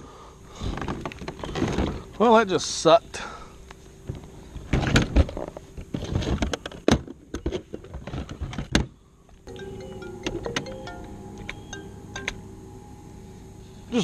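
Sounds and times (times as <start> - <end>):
background music: 9.5 - 14.0.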